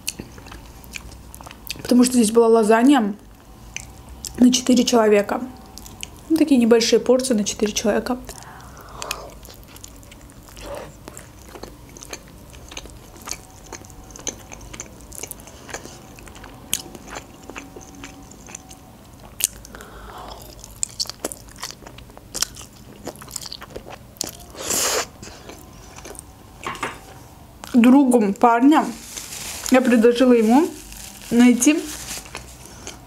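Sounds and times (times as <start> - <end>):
close chewing with wet smacks: 0.0 - 1.9, 9.0 - 19.8, 20.4 - 24.5.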